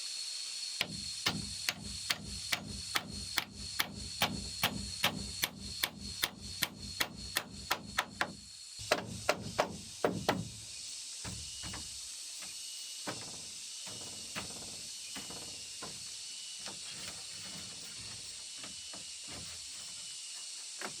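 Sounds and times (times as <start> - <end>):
high-pitched hiss: 0.0 - 21.0
hammer knocking on wood: 0.8 - 10.6.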